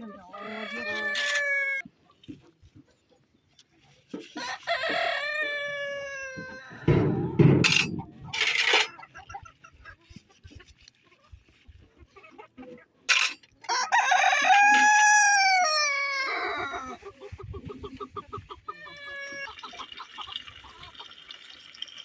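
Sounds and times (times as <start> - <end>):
rooster crowing: 4.4 - 6.9, 13.7 - 16.6
rustles and knocks: 6.4 - 9.0.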